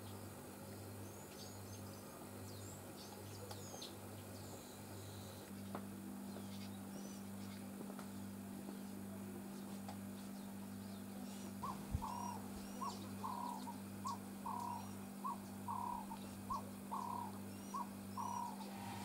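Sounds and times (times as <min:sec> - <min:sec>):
steady low hum: 0:00.0 - 0:19.0
faint high bird chirps: 0:10.4 - 0:19.0
bird calling in two-note phrases: 0:11.6 - 0:18.7.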